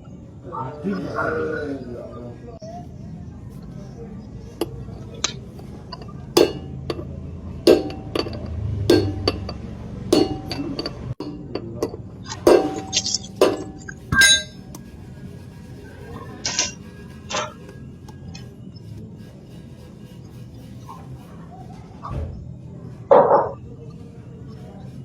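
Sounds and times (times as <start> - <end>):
hammer striking steel: 4.6 - 14.7.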